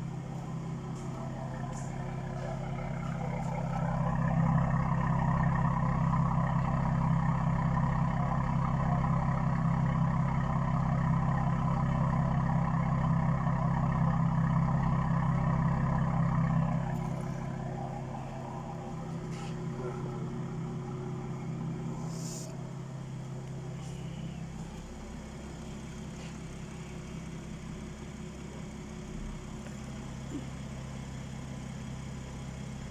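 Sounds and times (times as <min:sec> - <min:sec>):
car engine and exhaust running: 0:00.0 - 0:32.9.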